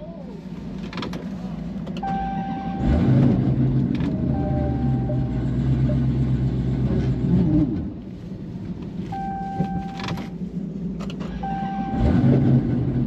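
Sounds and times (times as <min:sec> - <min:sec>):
car engine running under load: 0:00.0 - 0:13.0.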